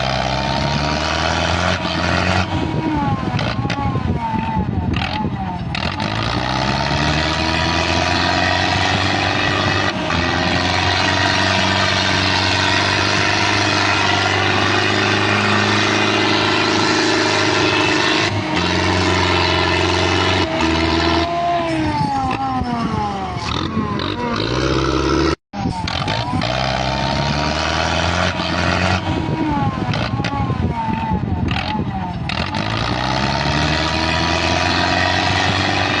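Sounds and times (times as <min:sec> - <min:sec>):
tractor diesel engine revving: 0:00.0 - 0:36.0.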